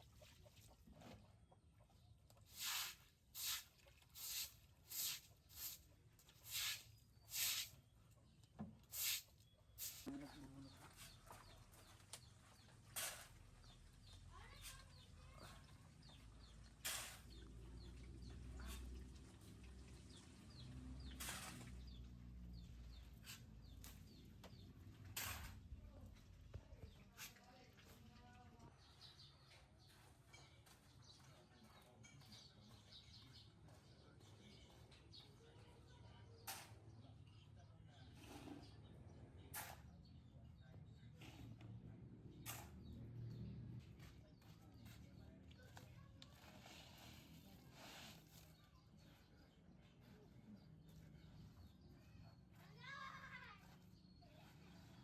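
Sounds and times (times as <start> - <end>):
small birds chirping: 0.2 - 55.0
stiff broom sweeping: 2.5 - 7.8, 8.8 - 10.1, 46.5 - 48.5.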